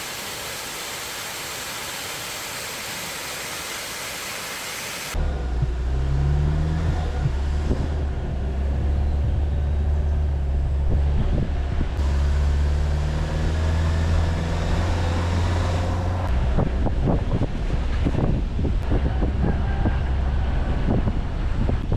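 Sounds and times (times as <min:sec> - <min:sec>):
car engine humming: 0:05.1 - 0:16.5.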